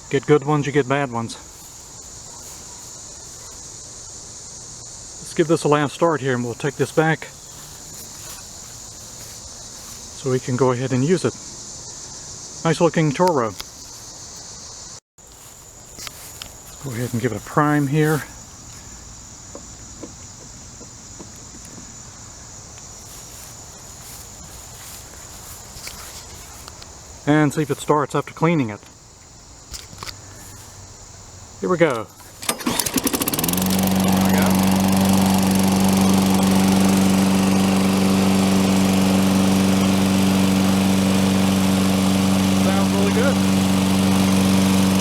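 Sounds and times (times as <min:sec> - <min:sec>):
crickets chirring: 0:00.0 - 0:44.0
lawn mower engine running: 0:06.5 - 0:10.6, 0:23.1 - 0:26.8, 0:31.8 - 0:45.0.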